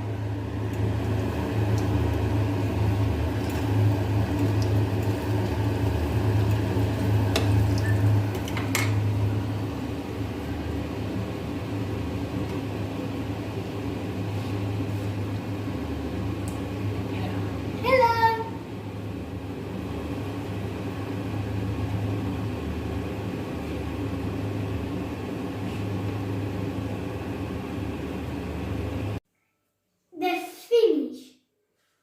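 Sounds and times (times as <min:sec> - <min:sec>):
appliance motor humming: 0:00.0 - 0:17.9.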